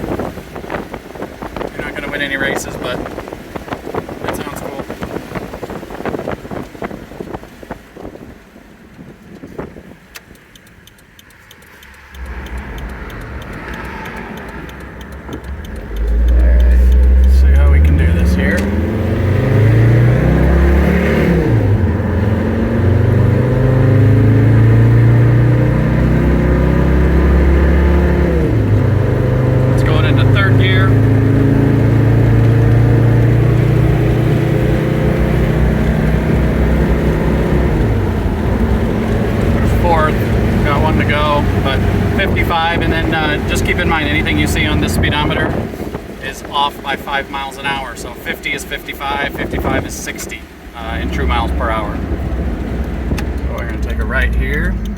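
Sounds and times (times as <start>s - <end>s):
diesel engine rumble: 0.0s - 54.9s
fast steady ticking: 10.1s - 20.6s, 28.5s - 54.9s.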